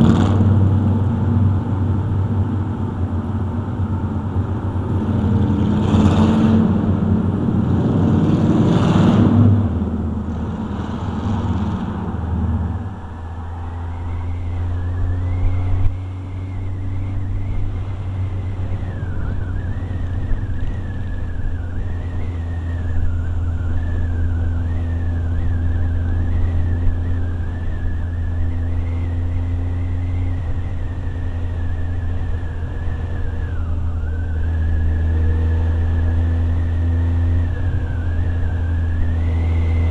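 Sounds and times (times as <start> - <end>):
motorcycle engine cruising: 0.0 - 39.9
riding wind rushing: 3.4 - 39.9
faint wavering high whine: 12.2 - 39.9.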